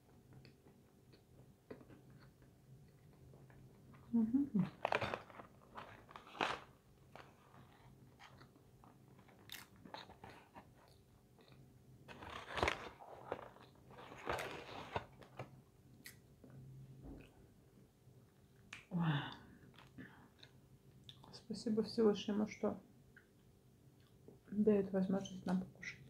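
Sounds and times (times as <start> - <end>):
person chewing crunchy fries: 4.7 - 8.6, 9.2 - 15.4.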